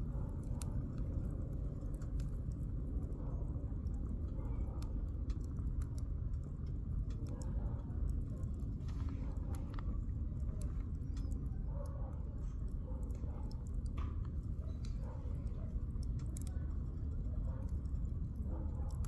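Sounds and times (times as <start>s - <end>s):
low steady rumble: 0.0s - 19.0s
campfire crackling and popping: 13.4s - 19.0s.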